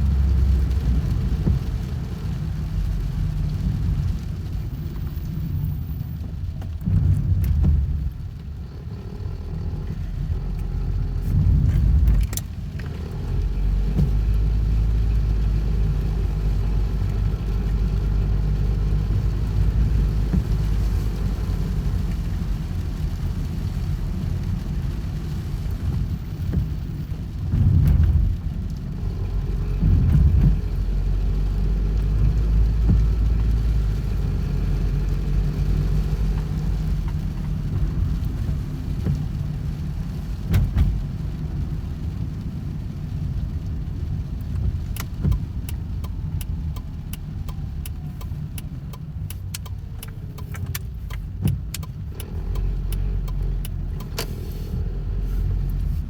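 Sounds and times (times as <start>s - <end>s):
car engine rumble: 0.0s - 56.0s
sharp ticks: 45.0s - 54.3s.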